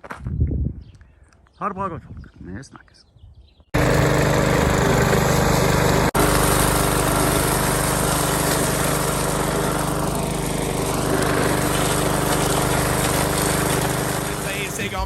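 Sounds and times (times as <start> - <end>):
small engine running: 3.8 - 15.0.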